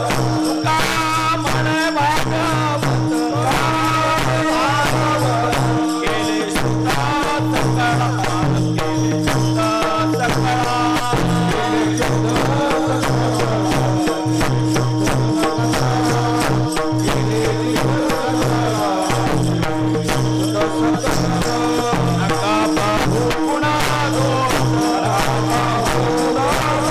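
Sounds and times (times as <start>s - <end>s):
hand cymbals jingling: 0.0s - 26.9s
wavering devotional melody: 0.0s - 26.9s.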